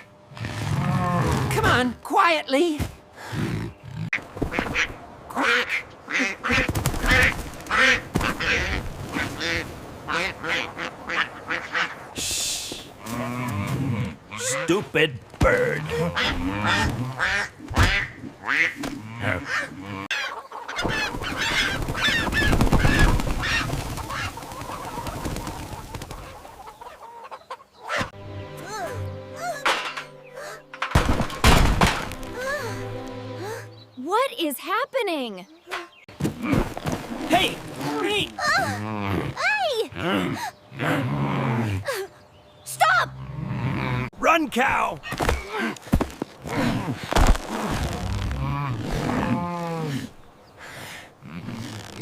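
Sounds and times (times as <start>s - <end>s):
cartoon poultry clucking and squawking: 15.8s - 28.2s
musical notes: 28.2s - 31.0s, 32.0s - 34.2s.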